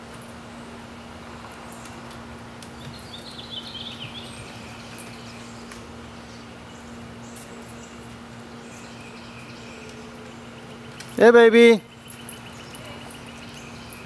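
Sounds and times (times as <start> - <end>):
bird chirping: 2.8 - 14.0.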